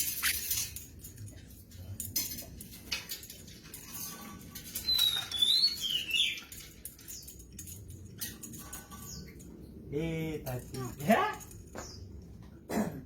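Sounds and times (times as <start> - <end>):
light clicks and scratches: 0.0 - 9.6.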